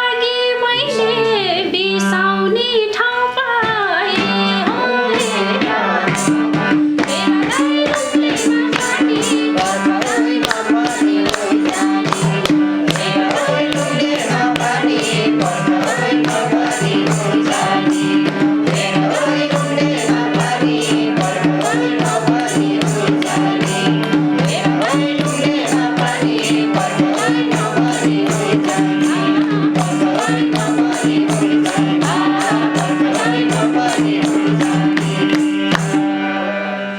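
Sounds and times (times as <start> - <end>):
percussion and shaker beat: 5.2 - 36.1.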